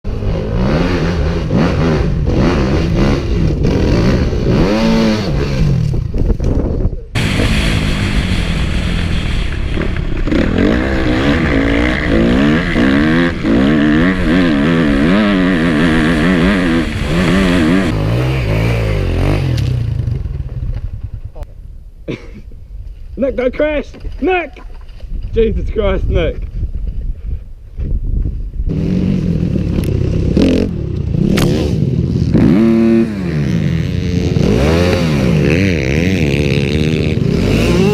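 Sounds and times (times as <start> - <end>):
dirt bike engine revving: 0.1 - 6.2, 7.2 - 20.5, 28.7 - 37.9.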